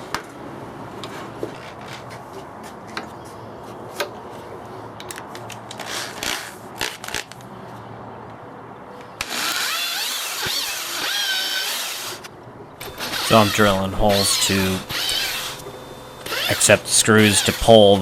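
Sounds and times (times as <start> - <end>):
electric drill drilling into wood: 9.2 - 15.6, 16.2 - 17.6.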